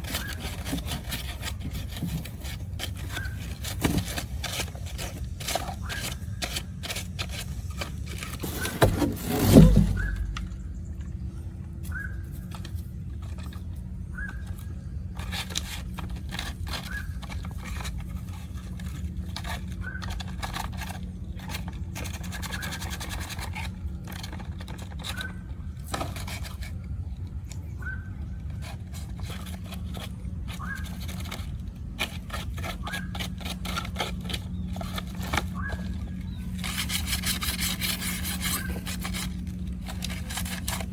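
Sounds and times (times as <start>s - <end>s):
hand scraping strokes: 0.0s - 10.7s, 29.0s - 40.9s.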